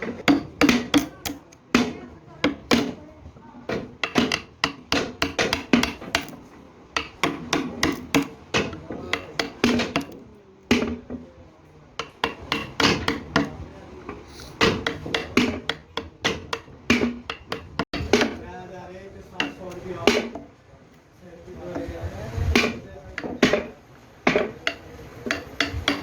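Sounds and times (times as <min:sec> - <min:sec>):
hand hammering blows: 0:00.0 - 0:03.0, 0:03.7 - 0:11.2, 0:12.0 - 0:18.5, 0:22.5 - 0:26.0.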